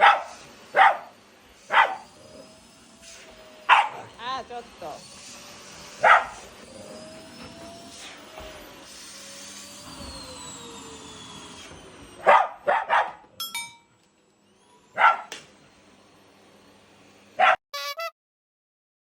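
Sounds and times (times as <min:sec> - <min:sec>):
dog barking: 0:00.0 - 0:01.1, 0:01.7 - 0:02.1, 0:03.7 - 0:04.1, 0:06.0 - 0:06.4, 0:12.2 - 0:13.2, 0:15.0 - 0:15.3, 0:17.4 - 0:17.6
vacuum cleaner running: 0:00.0 - 0:13.0, 0:14.0 - 0:17.5.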